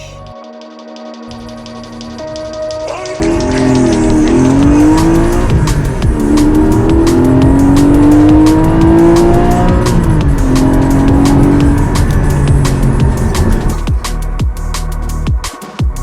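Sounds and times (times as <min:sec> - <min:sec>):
music: 0:00.0 - 0:16.0
car engine revving through gears: 0:03.2 - 0:13.9.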